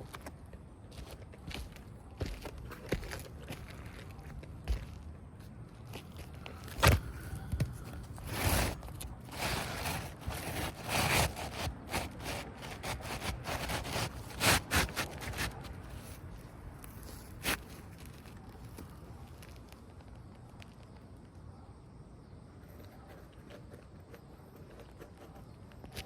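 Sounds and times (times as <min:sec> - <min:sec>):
roof shingles scraping and rustling: 0:06.6 - 0:16.2.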